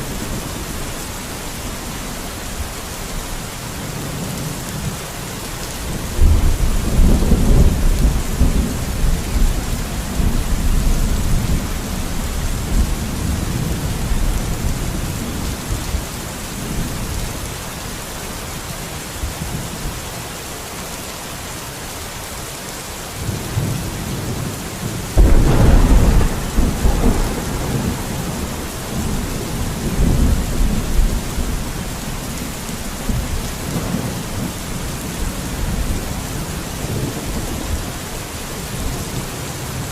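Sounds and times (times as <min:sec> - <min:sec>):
steady rain hiss: 0:00.0 - 0:39.9
deep rolling thunder rumbles: 0:06.0 - 0:16.9, 0:23.6 - 0:37.9.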